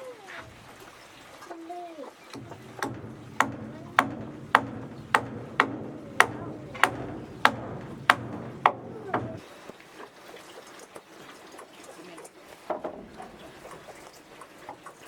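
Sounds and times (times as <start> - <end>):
hammer blows on wood: 2.4 - 9.4
steady low hum: 2.4 - 9.4.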